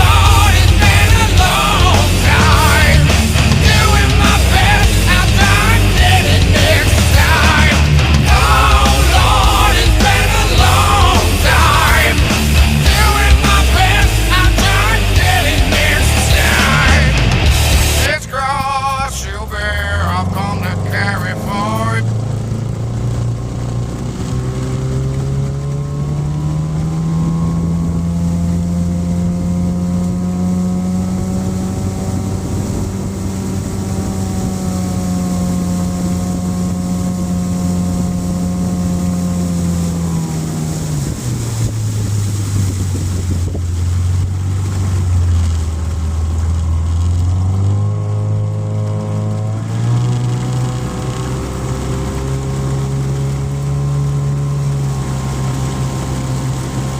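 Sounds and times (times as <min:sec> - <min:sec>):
motorboat engine running: 0:00.0 - 0:56.9.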